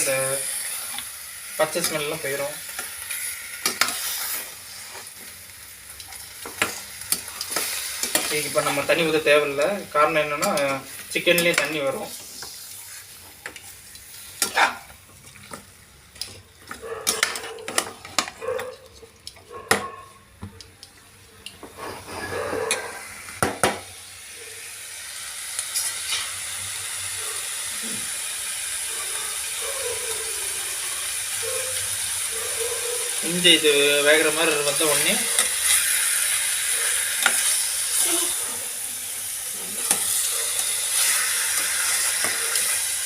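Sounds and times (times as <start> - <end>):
chicken sizzling in a pan: 0.0 - 18.5, 21.7 - 43.0
spoon scraping a metal pan: 21.7 - 23.0.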